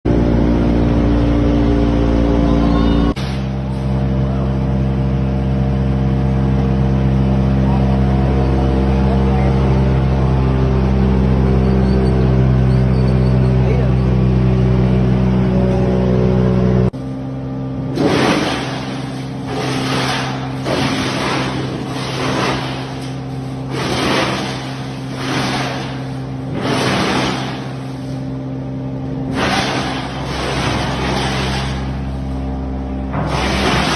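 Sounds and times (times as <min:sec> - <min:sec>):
wood chipper engine running: 0:00.1 - 0:33.9
wood shredding in chipper: 0:17.4 - 0:33.9.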